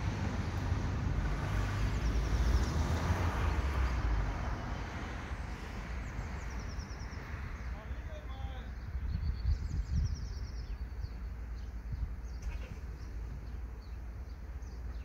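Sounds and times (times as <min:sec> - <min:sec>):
vehicle passing by: 0:00.0 - 0:07.8.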